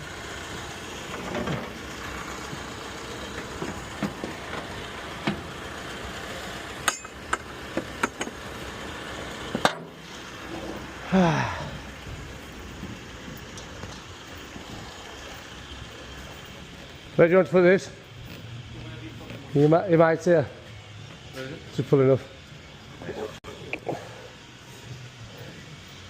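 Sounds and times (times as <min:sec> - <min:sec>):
steady vehicle hum: 0:00.0 - 0:26.0
knocks and clinks of hard objects: 0:06.8 - 0:08.4.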